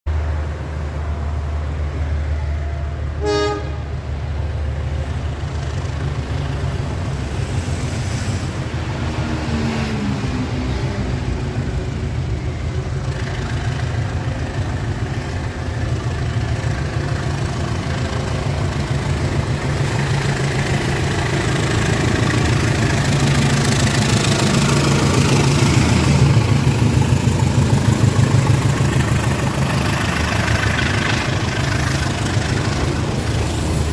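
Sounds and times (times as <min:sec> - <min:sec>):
diesel locomotive engine drone: 0:00.1 - 0:33.9
rail noise: 0:00.1 - 0:33.9
train horn toot: 0:03.2 - 0:03.9.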